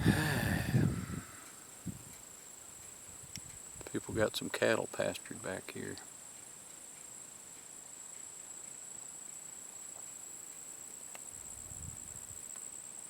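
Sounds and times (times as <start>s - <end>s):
insect trilling: 0.0s - 2.1s.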